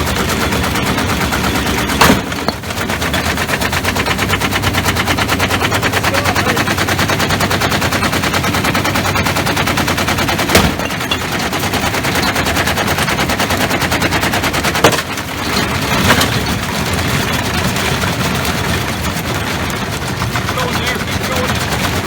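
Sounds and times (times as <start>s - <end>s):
washing machine drum banging: 0.0s - 16.6s
washing machine drum rattling: 0.0s - 22.0s.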